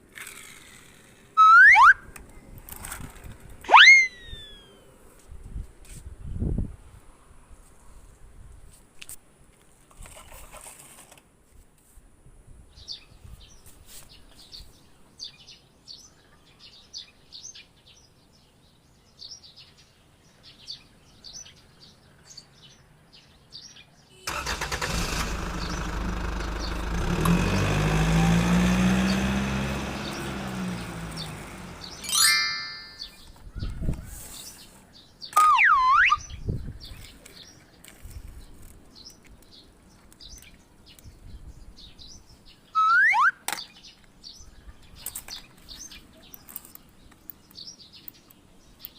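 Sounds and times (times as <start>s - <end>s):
faint bird chirps: 3.7s - 4.8s, 42.0s - 43.8s
loud engine hum: 24.3s - 33.1s.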